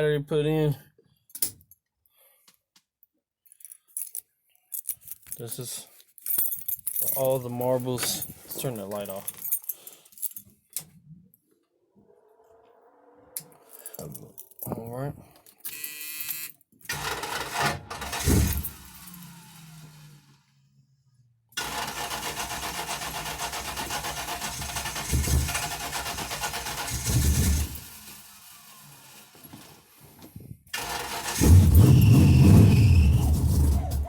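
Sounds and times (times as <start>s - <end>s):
starter cranking engine: 16.9s - 20.4s, 21.6s - 30.0s, 30.7s - 34.0s
car engine running: 16.9s - 20.8s, 21.6s - 29.4s.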